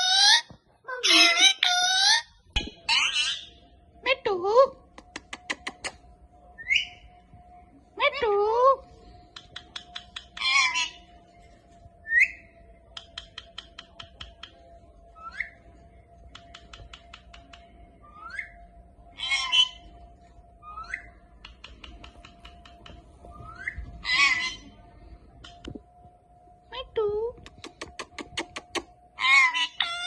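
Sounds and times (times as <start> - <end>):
parakeet clicks and whistle: 9.4 - 10.9, 13.0 - 14.6, 16.3 - 17.7
harsh parakeet calls: 10.4 - 11.0, 19.2 - 19.9, 24.0 - 24.7, 29.2 - 30.0.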